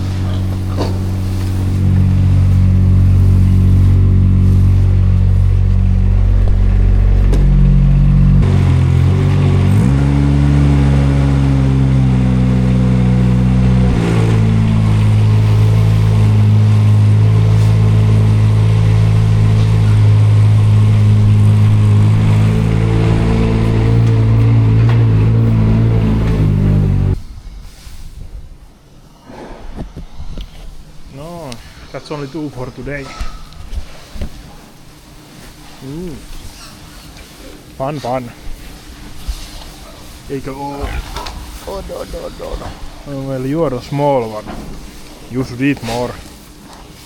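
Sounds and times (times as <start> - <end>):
tractor engine running loudly: 0.0 - 27.2.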